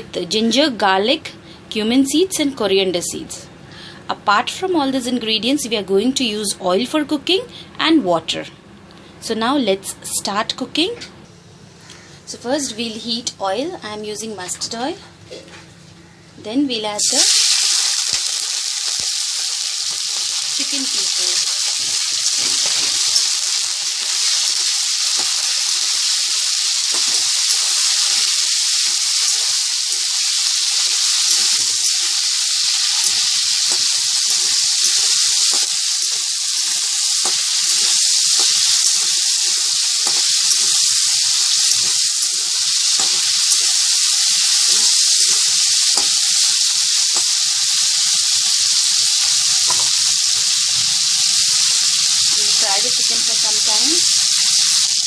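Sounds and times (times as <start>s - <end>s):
chicken sizzling in oil: 17.0s - 55.0s
stirring in a pan: 32.8s - 47.3s.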